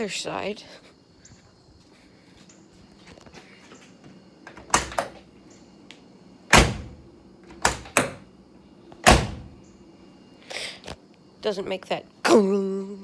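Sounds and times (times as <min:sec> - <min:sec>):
car door latch clicks: 0:04.5 - 0:05.2, 0:06.5 - 0:08.2, 0:09.0 - 0:09.6
car door slamming: 0:06.5 - 0:08.2, 0:09.0 - 0:09.6.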